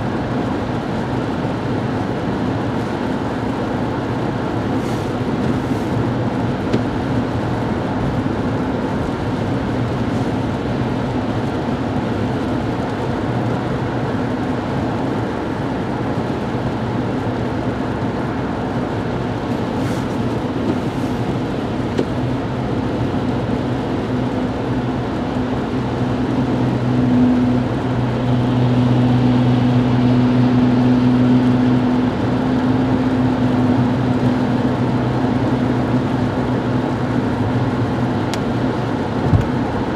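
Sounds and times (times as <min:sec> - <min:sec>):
car engine hum: 0:00.0 - 0:39.9
tyre and road rumble: 0:00.0 - 0:39.9.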